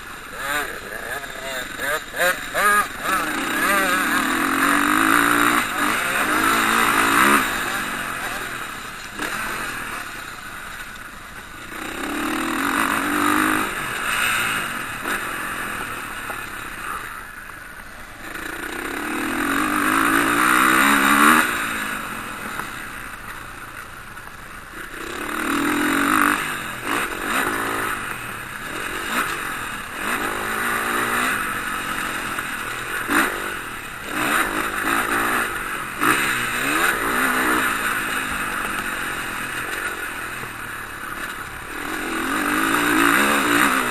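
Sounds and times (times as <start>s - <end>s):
motocross bikes revving past: 0.0s - 43.9s.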